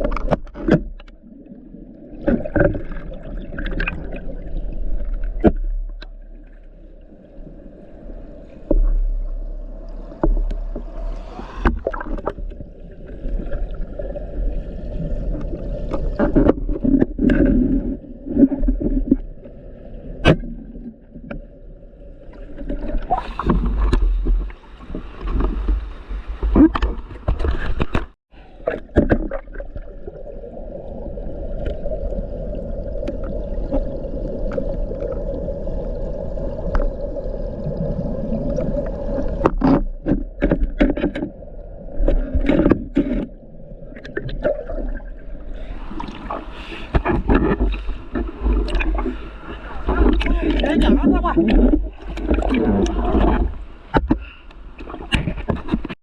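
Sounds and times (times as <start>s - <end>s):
water noise: 0.0s - 56.0s.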